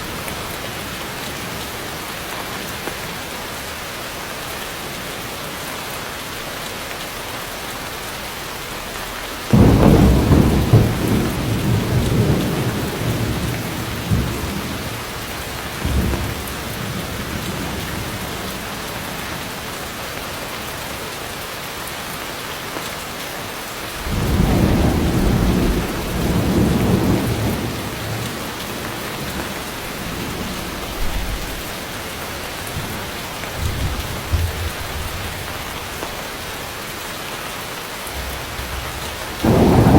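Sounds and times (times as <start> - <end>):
heavy rain falling: 0.0 - 39.9
loud thunder crack: 9.5 - 14.9, 24.0 - 31.7, 39.4 - 39.9
thunder rumbling: 9.5 - 19.6, 24.0 - 36.2, 38.2 - 39.9.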